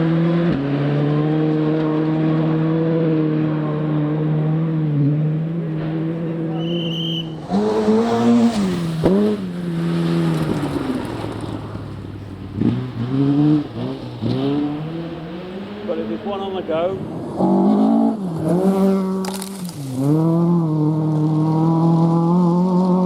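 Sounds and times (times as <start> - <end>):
rally car engine revving: 0.0 - 23.0
sharp crack: 19.1 - 20.0.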